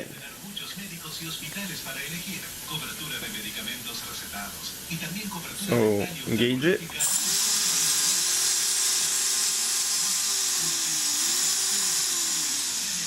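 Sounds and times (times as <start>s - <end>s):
drone motors whining: 7.0s - 13.0s.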